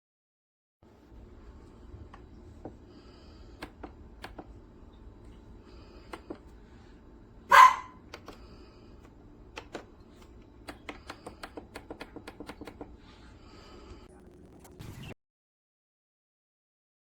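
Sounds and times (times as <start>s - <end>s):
loud bark-like sound: 7.5s - 8.0s.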